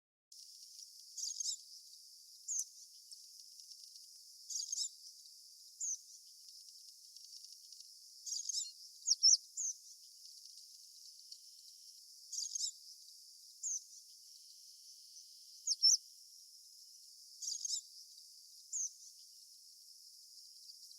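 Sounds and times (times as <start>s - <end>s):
insect hiss: 0.4s - 20.9s
birds squeaky chirping: 1.2s - 1.6s, 4.5s - 5.0s, 5.8s - 13.0s, 13.6s - 16.0s, 17.4s - 17.9s, 18.7s - 19.0s.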